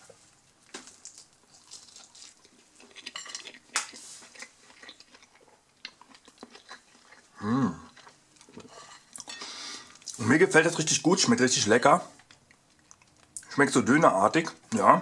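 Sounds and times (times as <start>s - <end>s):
person chewing crunchy food: 0.6s - 10.2s, 12.1s - 13.5s.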